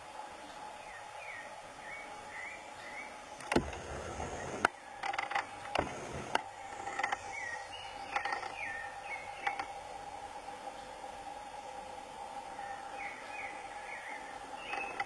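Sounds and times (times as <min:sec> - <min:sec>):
steady high hum: 0:00.0 - 0:15.0
sharp clicks and knocks: 0:03.4 - 0:07.3, 0:08.1 - 0:08.6.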